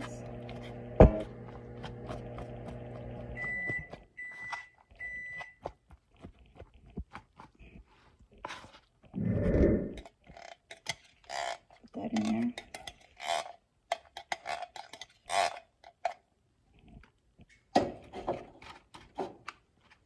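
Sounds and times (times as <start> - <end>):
microwave oven humming: 0.0 - 4.0.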